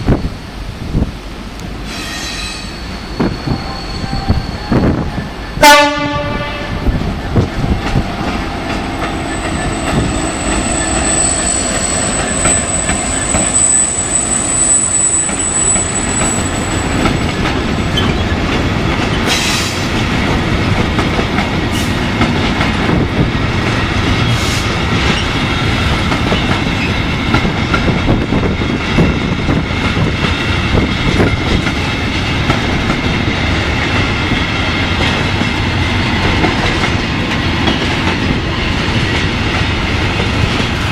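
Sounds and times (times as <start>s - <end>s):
train wheels rumbling on rail: 0.0s - 40.9s
high wheel squeal: 1.9s - 5.6s, 8.5s - 18.4s.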